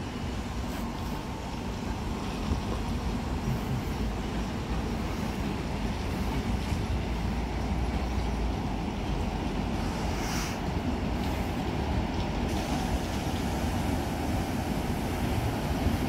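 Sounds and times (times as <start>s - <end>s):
wheels rumbling on rails: 0.0s - 16.0s
brief hiss: 9.8s - 10.7s.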